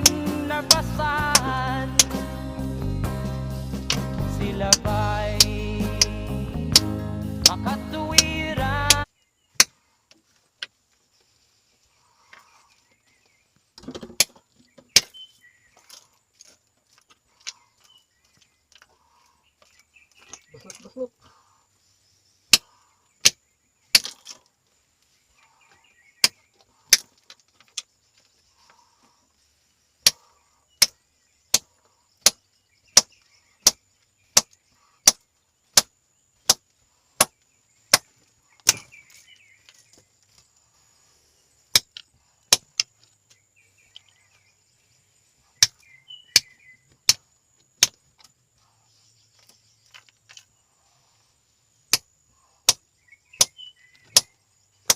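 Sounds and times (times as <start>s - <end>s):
sharp strikes: 0.0s - 9.0s.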